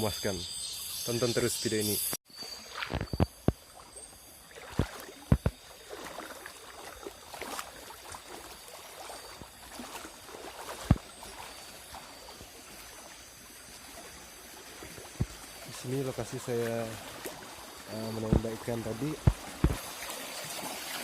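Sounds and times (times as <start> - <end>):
water sloshing and splashing: 2.3 - 21.0
sharp knocks: 19.2 - 19.8.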